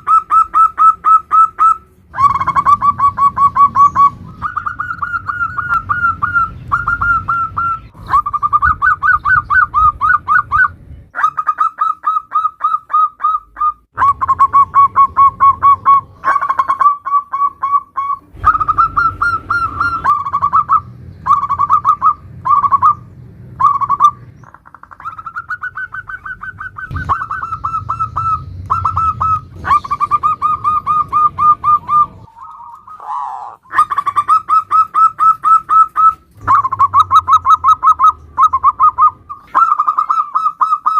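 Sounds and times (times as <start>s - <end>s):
dove trilling coos: 0.0s - 40.9s
low hum: 17.7s - 40.1s.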